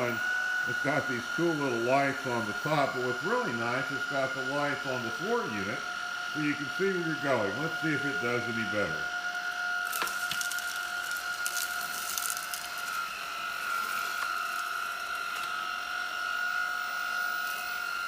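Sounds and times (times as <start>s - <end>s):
vacuum cleaner whining: 0.0s - 18.0s
debris crackling in vacuum: 9.8s - 15.6s.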